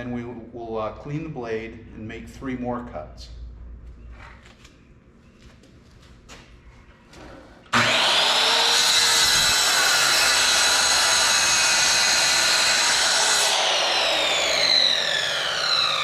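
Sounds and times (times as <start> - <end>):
miter saw cutting wood: 7.7 - 16.0.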